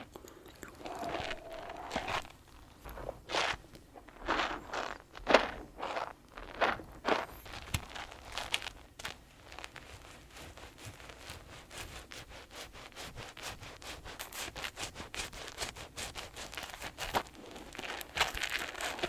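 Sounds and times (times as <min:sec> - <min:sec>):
hands rubbing soap lather: 0:07.6 - 0:19.0.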